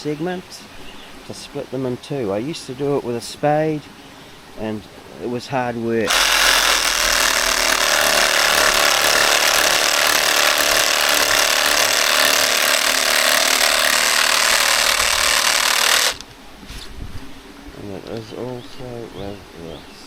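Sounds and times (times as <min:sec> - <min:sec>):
reciprocating saw cutting: 0:06.1 - 0:16.3.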